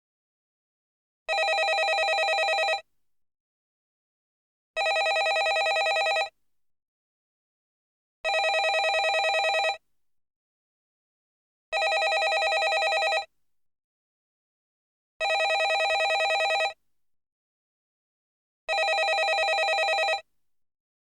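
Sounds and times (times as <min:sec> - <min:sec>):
telephone bell ringing: 0:01.3 - 0:02.8, 0:04.8 - 0:06.3, 0:08.3 - 0:09.8, 0:11.8 - 0:13.3, 0:15.2 - 0:16.8, 0:18.7 - 0:20.2.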